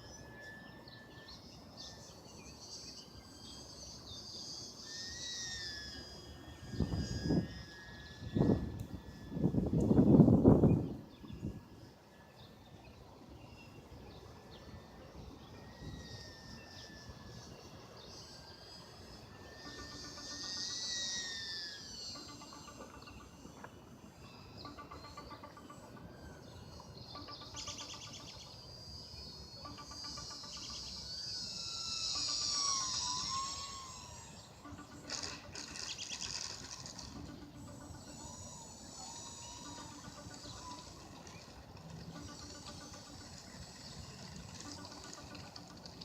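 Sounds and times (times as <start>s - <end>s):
birds or insects chirping: 0.0s - 46.0s
model plane motor whining: 30.9s - 46.0s.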